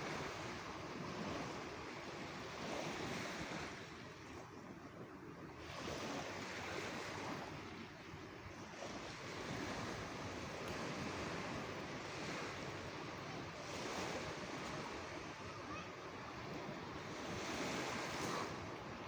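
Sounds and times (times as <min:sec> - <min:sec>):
waves washing onto shore: 0:00.0 - 0:19.0.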